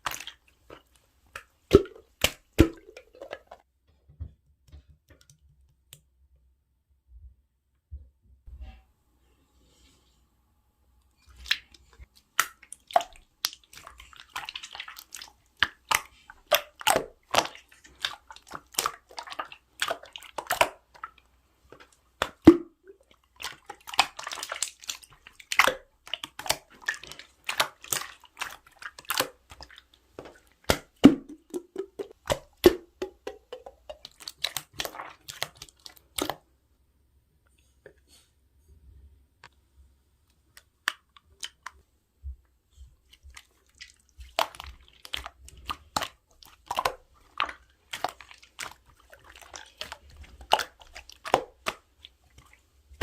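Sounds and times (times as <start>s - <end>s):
slime squishing: 0.0s - 3.6s, 11.2s - 36.5s, 40.4s - 41.9s, 42.8s - 53.0s.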